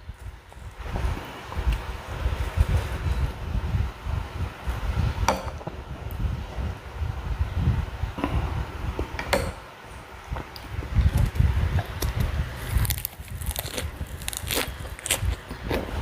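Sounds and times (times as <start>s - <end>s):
chewing crunchy food: 11.1s - 16.0s.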